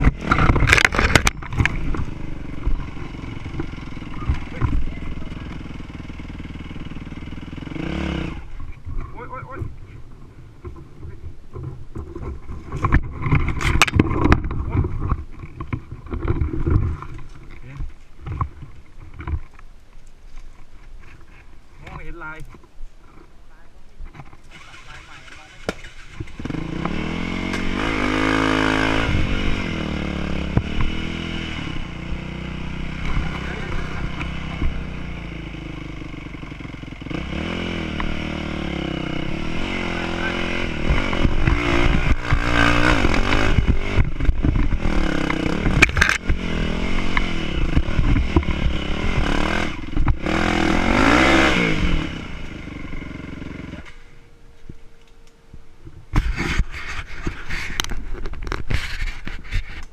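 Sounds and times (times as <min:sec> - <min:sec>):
rattling and clatter: 0:00.0 - 0:07.7, 0:08.4 - 0:19.6
motorcycle engine revving: 0:00.0 - 0:17.2, 0:24.4 - 0:54.3.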